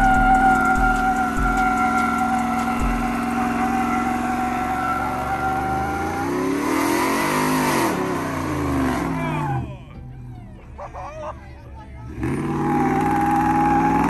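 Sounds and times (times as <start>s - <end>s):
steady high tone: 0.0s - 6.4s
truck engine revving: 0.0s - 14.0s.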